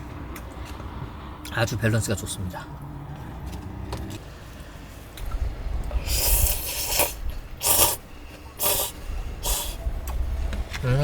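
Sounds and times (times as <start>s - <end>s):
slurping noodle soup: 5.9s - 9.8s
wind rumble on microphone: 9.0s - 11.0s.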